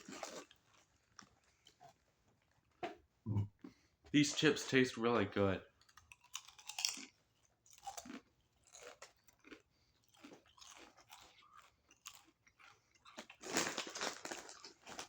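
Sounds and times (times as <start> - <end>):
person chewing crunchy chips: 0.0 - 2.0, 5.8 - 15.0.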